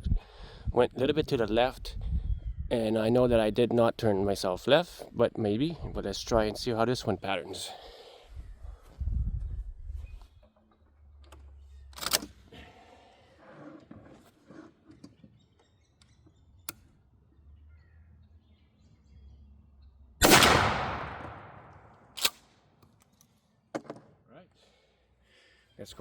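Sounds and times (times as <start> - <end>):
wind rumble on microphone: 0.0 - 4.4, 5.7 - 6.7, 8.3 - 10.4
faint bird chirps: 15.0 - 20.0.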